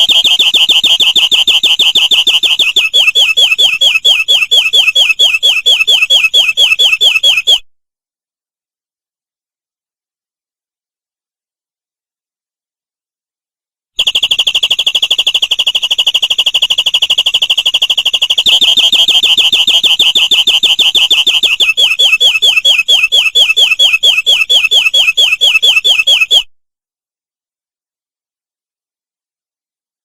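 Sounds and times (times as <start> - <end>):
canary singing: 0.0 - 7.6, 16.8 - 26.5.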